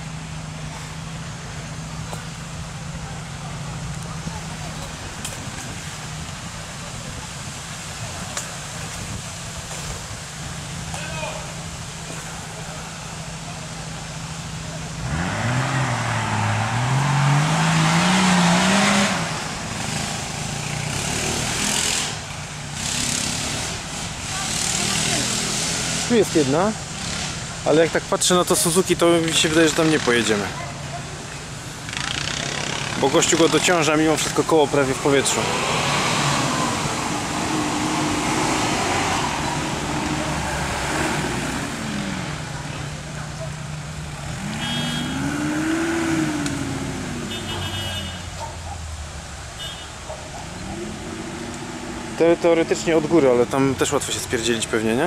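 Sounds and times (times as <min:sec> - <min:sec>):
car engine revving under load: 0:00.0 - 0:55.0.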